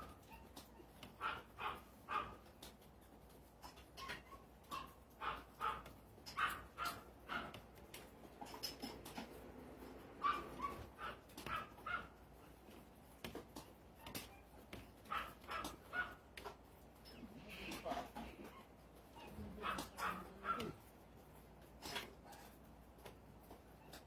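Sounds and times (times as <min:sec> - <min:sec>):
dog barking: 0:01.1 - 0:02.5, 0:04.7 - 0:07.6, 0:10.2 - 0:12.2, 0:15.0 - 0:16.2, 0:19.2 - 0:20.9.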